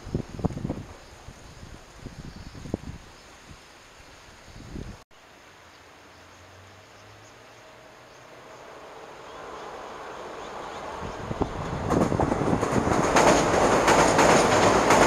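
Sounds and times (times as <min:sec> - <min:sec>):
faint outdoor background: 0:00.0 - 0:15.0
train wheels on rail: 0:08.4 - 0:15.0.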